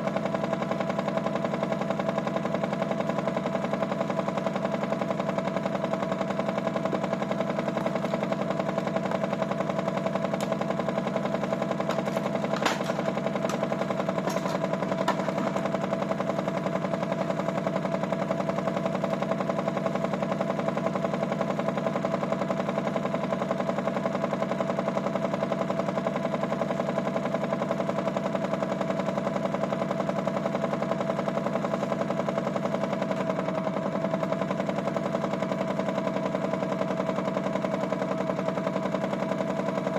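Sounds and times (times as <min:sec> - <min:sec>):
toy washing machine motor humming: 0:04.6 - 0:19.7.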